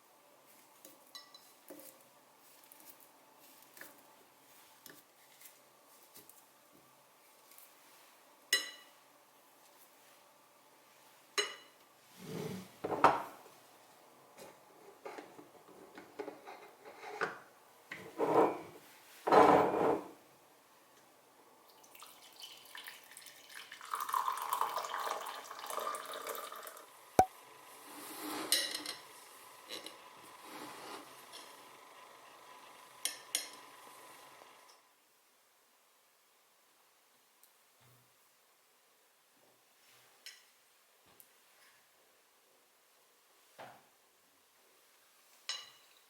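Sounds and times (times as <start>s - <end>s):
dishes clinking: 8.5s - 8.9s, 11.4s - 11.8s, 18.0s - 20.1s, 45.5s - 45.9s
kitchenware clattering and scraping: 14.8s - 20.2s, 28.1s - 29.1s
running water: 21.7s - 27.3s.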